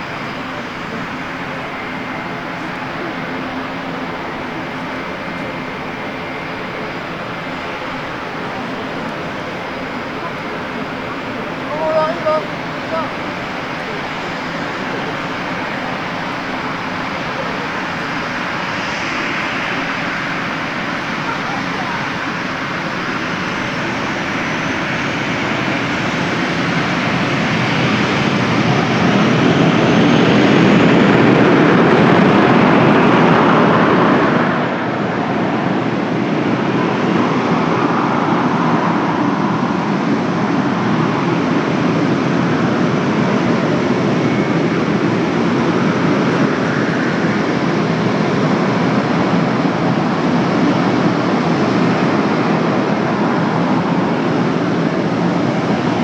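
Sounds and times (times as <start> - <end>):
turboprop engines running: 0.0 - 56.0.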